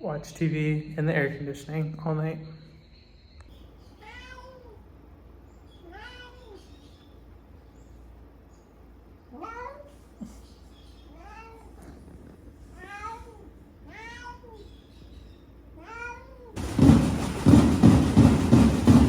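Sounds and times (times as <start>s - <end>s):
cat meowing: 3.9s - 4.8s, 5.7s - 6.8s, 9.3s - 10.2s, 11.1s - 15.1s, 15.7s - 16.6s.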